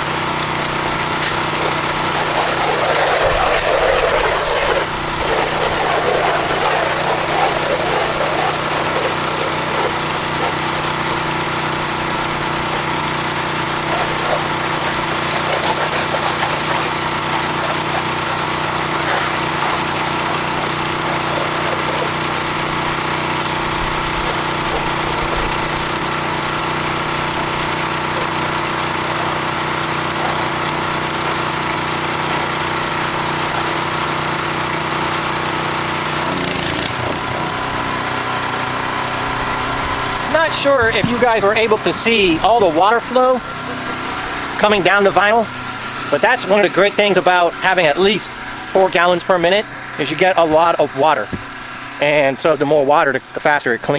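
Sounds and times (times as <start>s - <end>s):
pressure washer engine running: 0.0s - 53.9s
water spray hissing: 0.7s - 13.0s, 36.2s - 38.3s.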